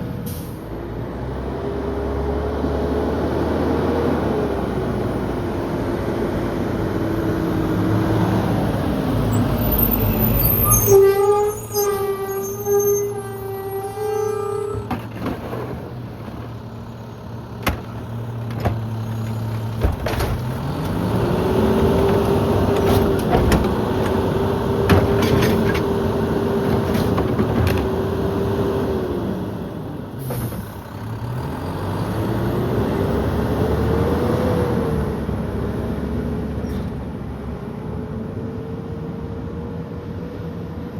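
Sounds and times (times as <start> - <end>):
garbage truck engine whining: 0.0 - 39.2
metal knocks and clanks: 17.6 - 20.7, 24.8 - 26.0.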